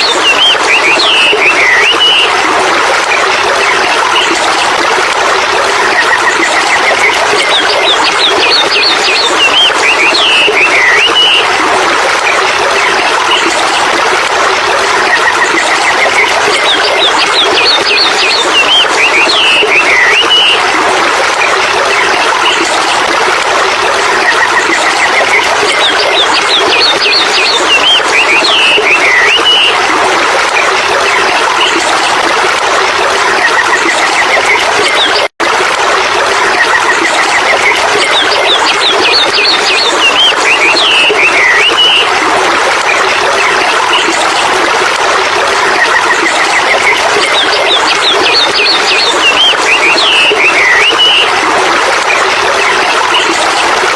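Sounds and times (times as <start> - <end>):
birds chirping: 0.0 - 2.4, 6.1 - 11.5, 15.2 - 20.8, 24.4 - 29.9, 37.4 - 42.2, 45.8 - 51.5
running water rushing: 0.0 - 53.9.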